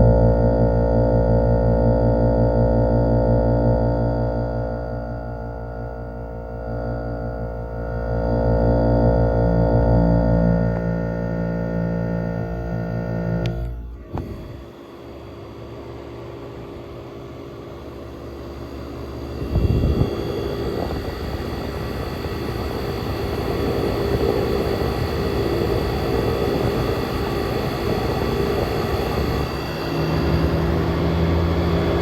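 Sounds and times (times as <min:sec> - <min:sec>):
air conditioner fan rush: 0:07.5 - 0:32.0.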